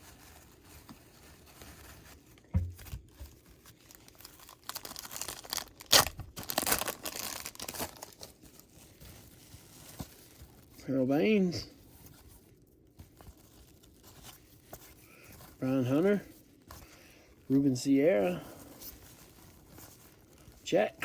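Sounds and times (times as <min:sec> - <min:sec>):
wrapper tearing and crinkling: 0:00.0 - 0:10.9, 0:12.4 - 0:16.8, 0:17.4 - 0:21.0
soft thump: 0:02.5 - 0:02.9.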